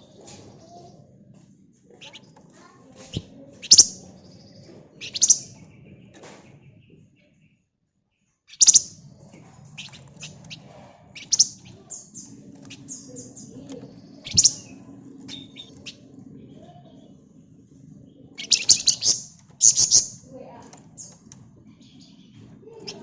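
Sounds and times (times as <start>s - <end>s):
songbird chirping: 0.0s - 23.0s.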